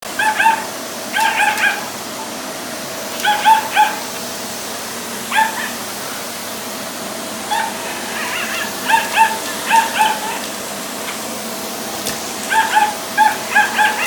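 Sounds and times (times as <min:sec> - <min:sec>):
dog yipping: 0:00.1 - 0:02.0, 0:03.2 - 0:04.1, 0:05.3 - 0:05.8, 0:07.4 - 0:10.5, 0:12.4 - 0:14.0
steady background hum: 0:00.1 - 0:14.0.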